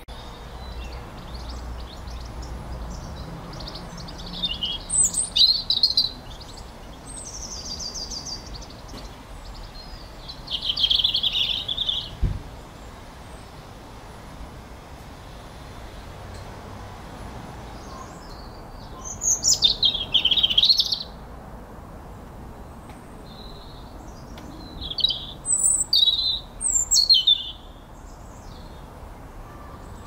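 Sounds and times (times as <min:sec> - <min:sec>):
birds singing: 0:00.0 - 0:13.8, 0:17.6 - 0:21.2, 0:22.2 - 0:30.0
soft low thump: 0:12.2 - 0:12.5.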